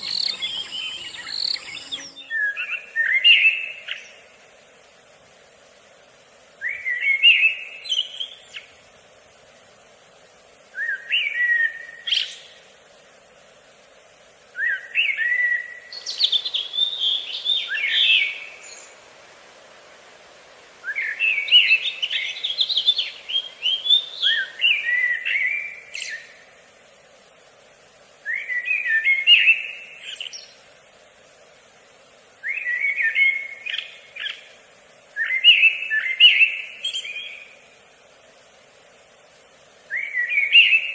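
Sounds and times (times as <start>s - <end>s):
songbird singing: 0.0s - 4.5s, 6.5s - 8.8s, 10.7s - 12.8s, 14.5s - 26.6s, 28.2s - 30.7s, 32.4s - 37.8s, 39.7s - 40.9s.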